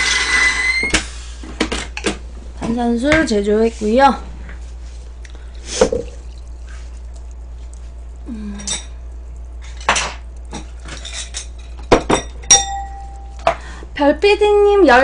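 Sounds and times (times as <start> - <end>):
dishes and utensils clinking: 8.5 - 9.0, 9.7 - 13.7.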